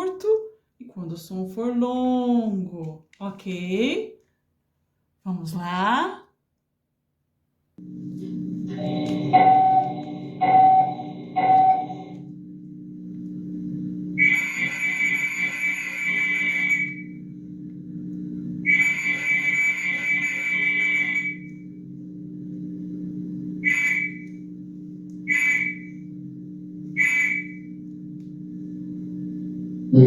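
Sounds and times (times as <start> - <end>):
steady low hum: 7.8 - 30.0
whistle blasts: 14.2 - 17.2, 18.6 - 21.6, 23.6 - 24.4, 25.2 - 26.0, 27.0 - 27.7.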